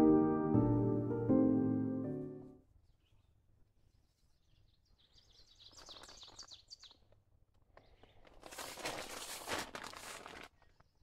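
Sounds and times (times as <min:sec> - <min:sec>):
fabric rustling: 0:08.3 - 0:10.6.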